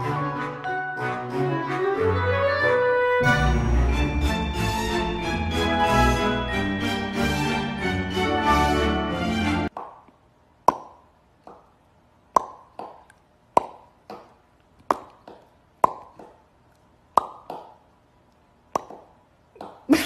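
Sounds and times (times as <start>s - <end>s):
background music: 0.0s - 9.7s.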